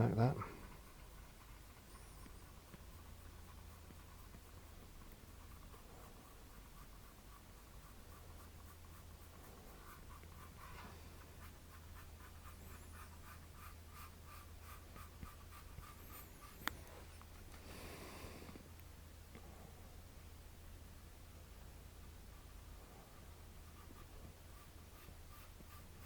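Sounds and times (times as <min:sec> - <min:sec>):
paintbrush scratching on canvas: 0:00.0 - 0:17.5, 0:22.3 - 0:26.0
low steady hum: 0:00.0 - 0:26.0.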